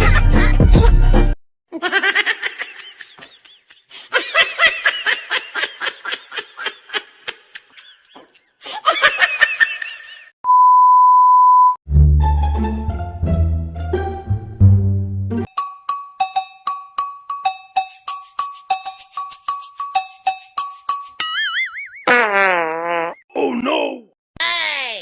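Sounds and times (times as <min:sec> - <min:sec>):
censor bleep: 0:10.5 - 0:11.8
plucked-string comedy music: 0:11.9 - 0:21.8.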